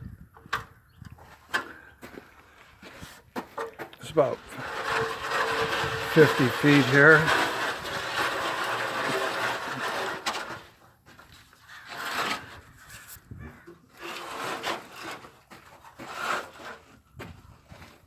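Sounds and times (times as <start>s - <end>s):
rubbing and scraping strokes: 2.9s - 17.1s.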